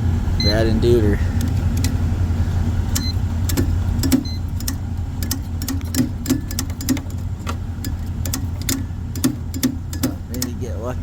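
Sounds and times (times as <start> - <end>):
motor humming: 0.0 - 11.0
regular motor ticking: 1.4 - 2.1, 2.9 - 10.8.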